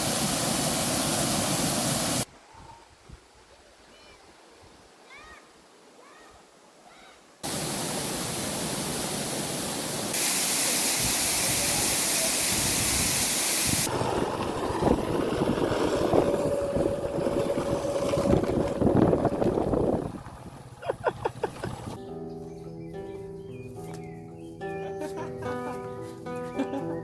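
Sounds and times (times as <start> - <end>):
waterfall rushing: 0.0 - 2.3, 7.4 - 13.9.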